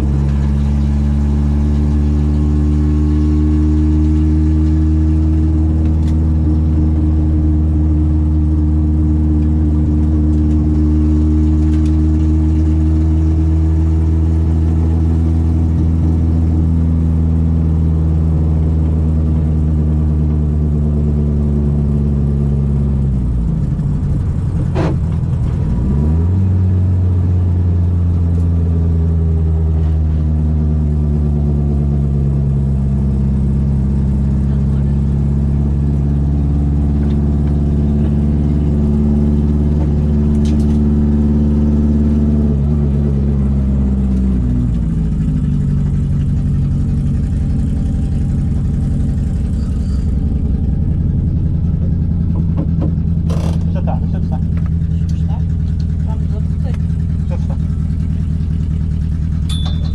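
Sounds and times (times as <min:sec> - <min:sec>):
car engine running hard: 0:00.0 - 0:59.9.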